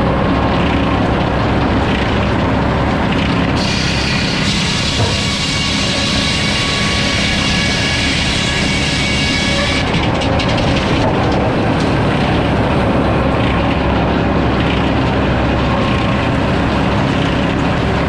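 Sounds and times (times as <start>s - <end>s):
sawmill machinery rumbling: 0.0s - 18.0s
saw blade whining in cut: 3.6s - 10.0s.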